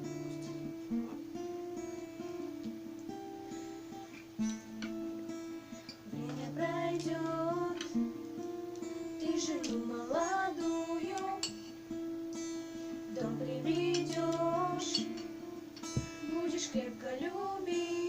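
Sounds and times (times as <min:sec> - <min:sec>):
acoustic guitar strumming: 0:00.0 - 0:18.0
woman singing wordless melody: 0:06.1 - 0:08.4, 0:09.0 - 0:11.7, 0:13.0 - 0:18.0.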